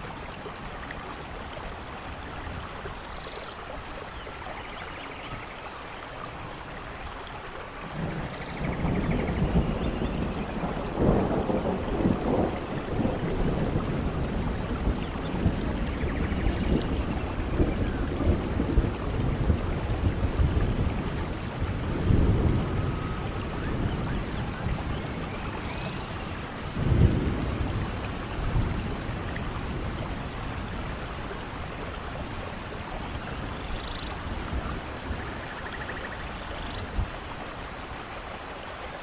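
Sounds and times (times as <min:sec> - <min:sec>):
steady rain: 0:00.0 - 0:39.0
low thunder rolls: 0:07.8 - 0:37.2.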